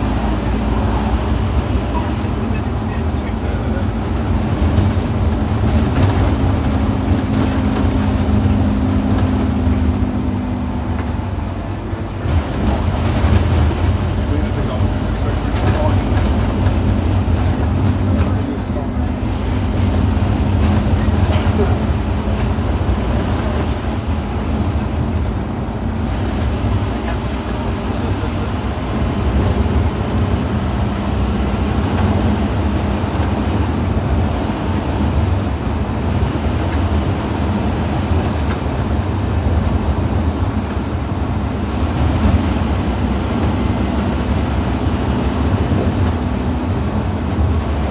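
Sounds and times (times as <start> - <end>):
bus engine running: 0.0 - 47.9
road rumble: 0.0 - 47.9.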